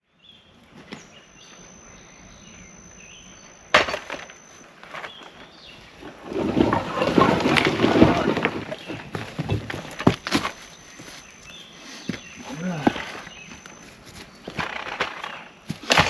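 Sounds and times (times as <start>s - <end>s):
thin steady high whine: 0.0s - 16.0s
faint high chirps: 0.1s - 6.1s, 6.7s - 16.0s
rustling and crunching: 3.7s - 16.0s.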